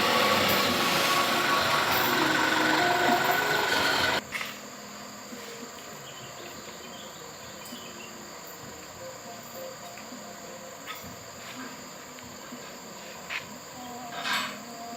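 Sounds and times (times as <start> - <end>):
truck engine running loudly: 0.0 - 4.2
insects calling: 0.0 - 14.9.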